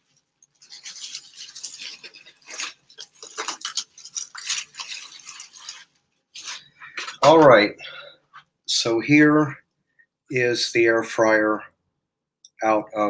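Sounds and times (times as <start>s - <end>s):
packaging rustling and scraping: 0.0s - 7.4s.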